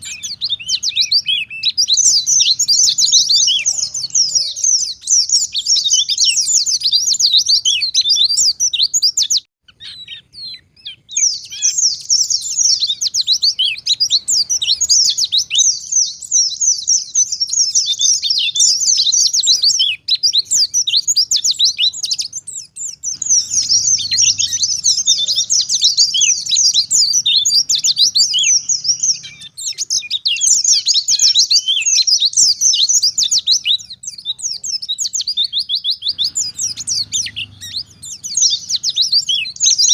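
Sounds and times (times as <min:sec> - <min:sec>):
bird singing high chirps: 0:00.0 - 0:39.9.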